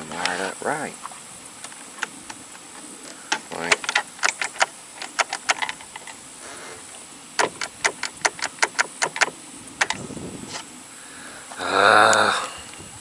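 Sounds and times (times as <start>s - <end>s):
tools clicking and tapping: 7.4s - 10.0s.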